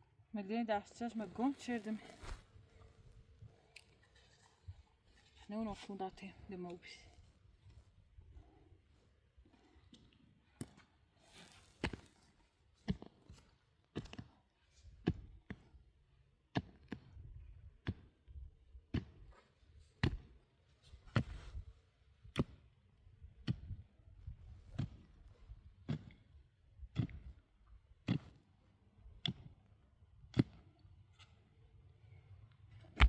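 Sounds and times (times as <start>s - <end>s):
pickaxe striking rock: 27.0s - 27.3s.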